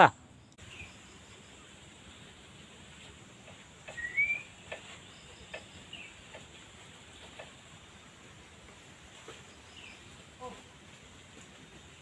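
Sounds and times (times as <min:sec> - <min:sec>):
bird rising chirp: 0:03.9 - 0:06.2.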